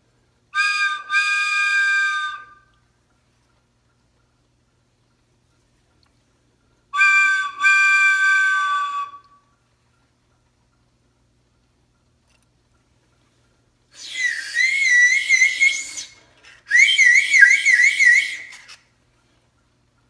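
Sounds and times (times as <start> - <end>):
shrill warbling whistle: 7.0 - 9.4, 14.0 - 18.8.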